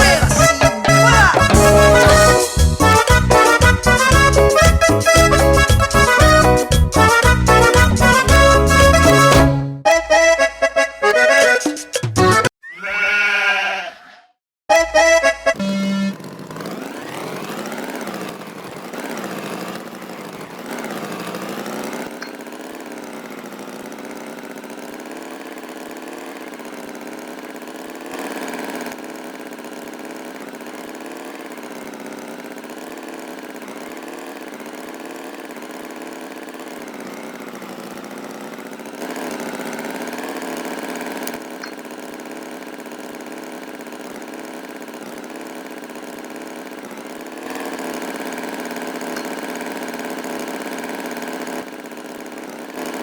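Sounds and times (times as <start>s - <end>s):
engine running and revving: 15.5s - 22.2s.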